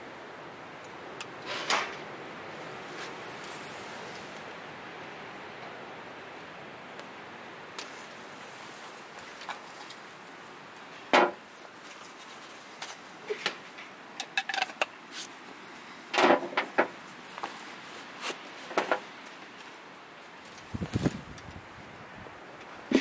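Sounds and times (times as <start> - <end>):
faint hiss: 0.0 - 23.0
objects knocking and clunking: 14.2 - 14.9.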